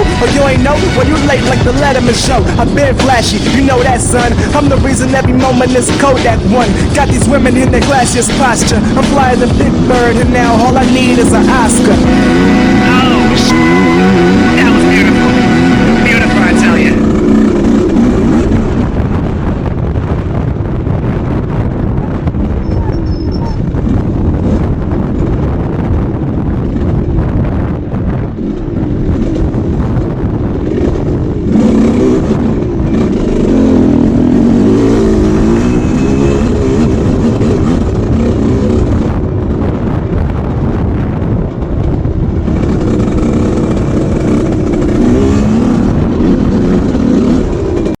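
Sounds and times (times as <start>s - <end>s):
two-stroke motocross bike revving: 0.0s - 19.1s, 30.5s - 39.3s, 42.3s - 48.0s.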